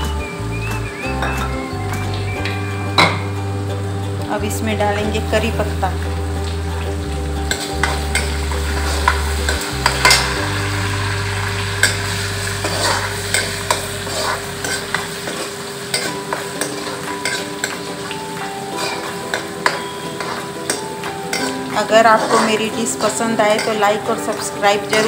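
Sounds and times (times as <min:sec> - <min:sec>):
lentils sizzling in oil: 0:00.0 - 0:25.0
steel ladle scraping pan: 0:07.4 - 0:18.1, 0:18.7 - 0:24.1.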